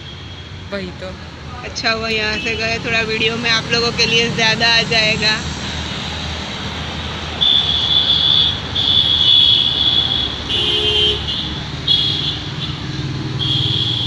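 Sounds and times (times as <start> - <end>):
vehicle running: 0.0 - 14.0.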